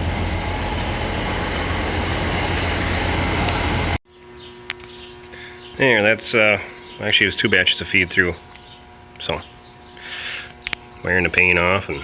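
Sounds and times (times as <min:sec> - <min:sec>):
tractor and mixer wagon running: 0:00.0 - 0:04.0
faint hum: 0:00.0 - 0:12.0.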